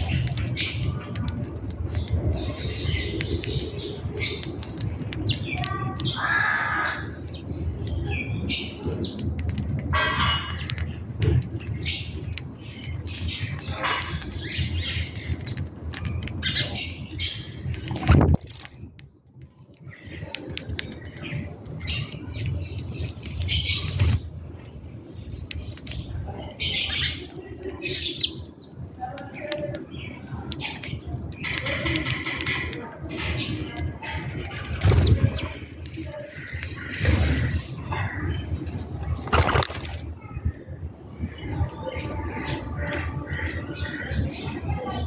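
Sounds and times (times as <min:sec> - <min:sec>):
birds chirping: 0:00.0 - 0:45.0
bird wings flapping: 0:34.7 - 0:35.6, 0:39.1 - 0:40.1.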